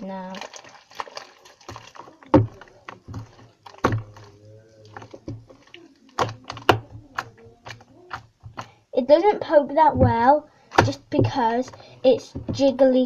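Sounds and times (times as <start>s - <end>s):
slime squelching: 0.0s - 13.0s.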